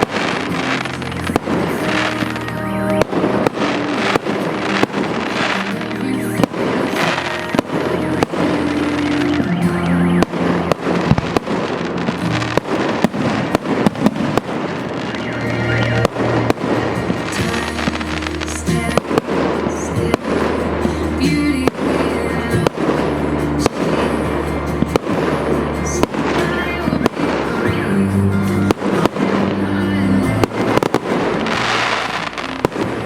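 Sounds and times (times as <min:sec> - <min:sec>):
fireworks bangs and bursts: 0:00.0 - 0:33.0
music with held bass notes: 0:14.9 - 0:33.0.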